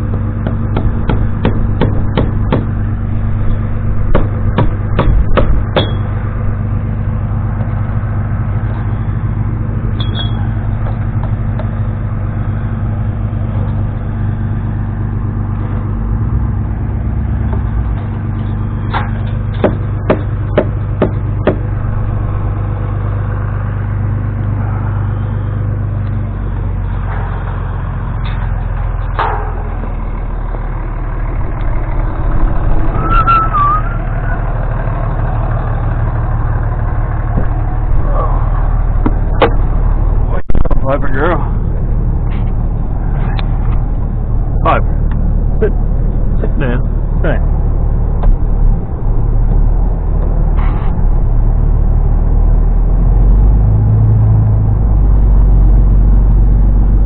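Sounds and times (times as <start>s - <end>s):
vehicle engine idling: 0.0s - 57.0s
sharp knocks: 0.1s - 2.7s, 4.1s - 6.1s, 18.9s - 21.7s, 39.0s - 39.7s.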